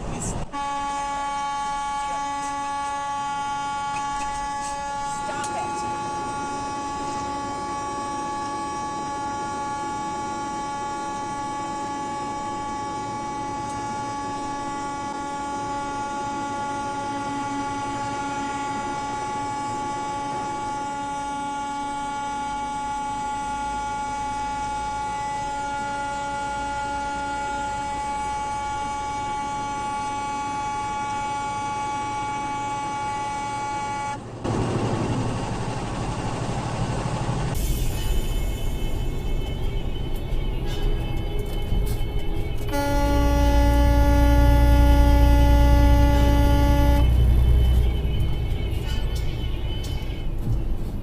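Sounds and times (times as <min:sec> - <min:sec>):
vehicle horn long blast: 0:00.5 - 0:34.2, 0:42.7 - 0:50.3
low engine rumble: 0:34.1 - 0:51.0.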